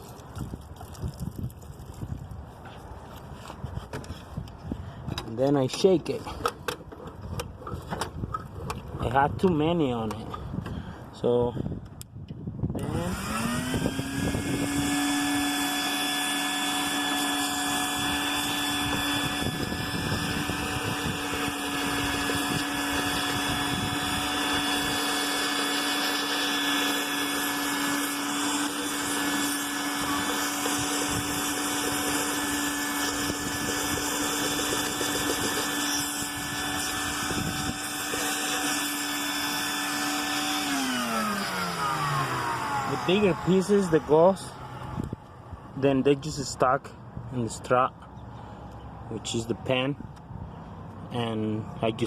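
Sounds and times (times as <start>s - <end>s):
vacuum cleaner motor whine: 12.8s - 45.2s.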